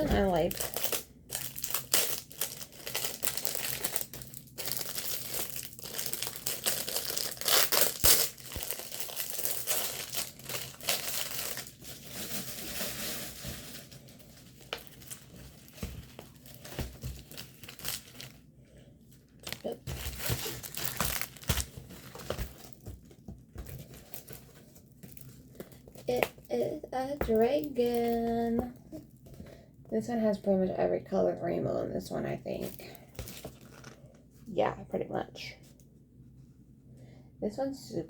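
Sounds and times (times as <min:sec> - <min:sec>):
plastic packaging crinkling: 0:00.0 - 0:18.4, 0:19.2 - 0:29.1.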